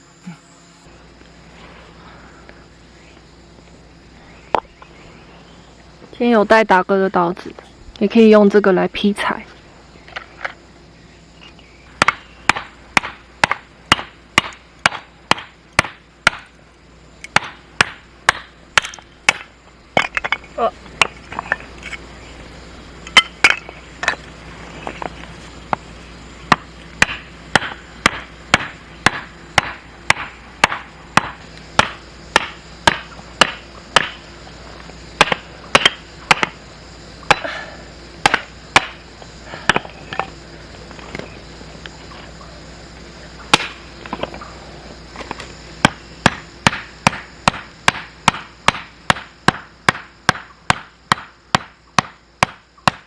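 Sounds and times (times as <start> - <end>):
knife splitting firewood: 39.7 - 40.2.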